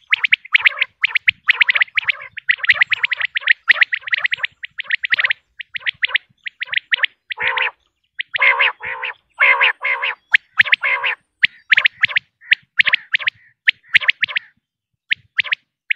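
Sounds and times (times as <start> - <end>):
quail chirping rapidly: 0.0 - 15.9
harsh low drawn-out calls: 7.4 - 7.8, 8.4 - 11.2.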